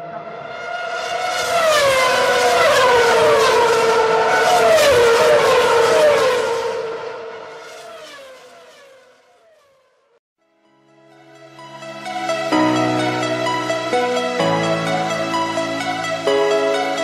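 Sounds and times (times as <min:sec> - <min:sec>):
race car engine revving: 0:00.2 - 0:08.9.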